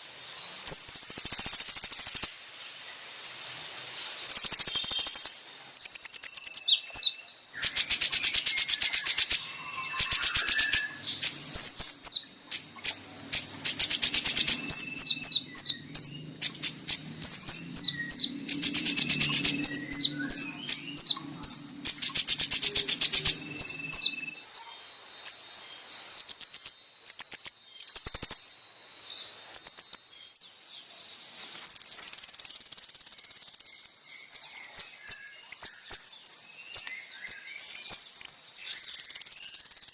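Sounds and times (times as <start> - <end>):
bird chips and buzzy trills: 4.3 - 28.6
long high bird trill: 6.0 - 24.6.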